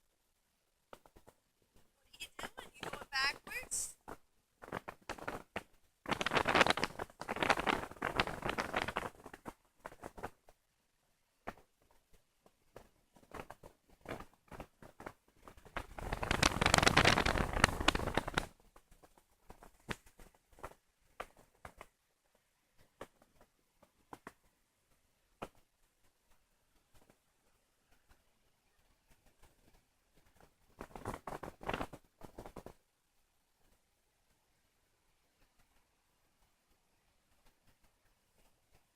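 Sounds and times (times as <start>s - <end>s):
crackles and pops: 0.0s - 38.9s
wind buffeting microphone: 15.6s - 18.5s.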